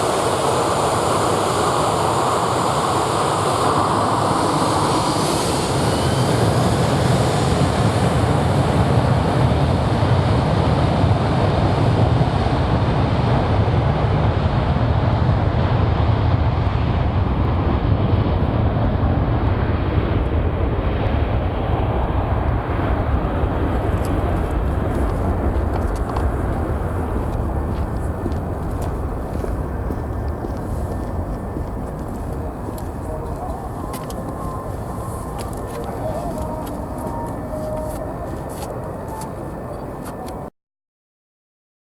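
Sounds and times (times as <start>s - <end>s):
jet engine roar: 0.0s - 40.5s.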